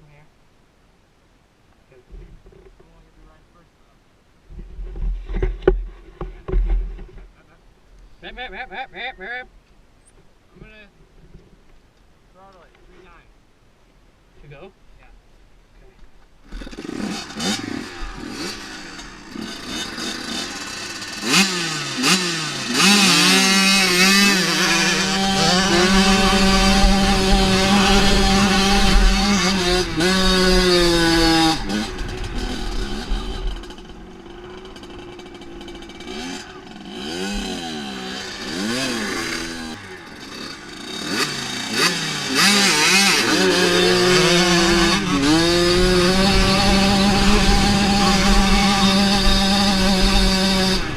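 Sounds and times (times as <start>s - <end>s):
dirt bike engine revving: 16.4s - 50.9s.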